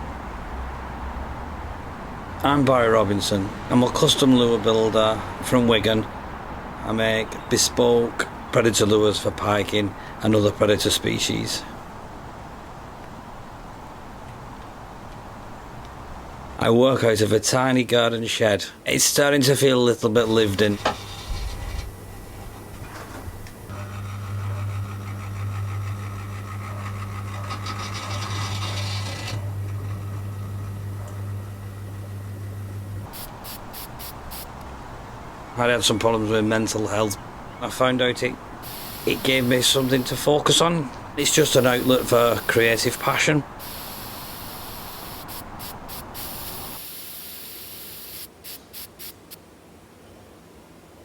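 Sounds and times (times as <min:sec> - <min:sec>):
electric sander on wood: 0:23.7 - 0:33.1, 0:38.7 - 0:40.2, 0:41.2 - 0:45.3
airbrush hissing: 0:33.1 - 0:34.5, 0:38.6 - 0:40.2, 0:41.2 - 0:49.3.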